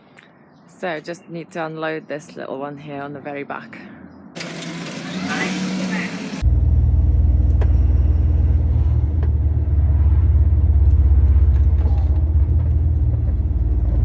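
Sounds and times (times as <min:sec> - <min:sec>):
lorry engine drone in cab: 0:04.4 - 0:14.0.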